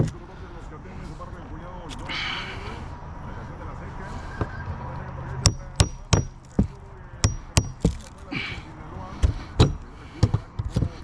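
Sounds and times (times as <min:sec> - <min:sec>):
hammer striking metal: 0:05.4 - 0:08.1, 0:09.6 - 0:09.8.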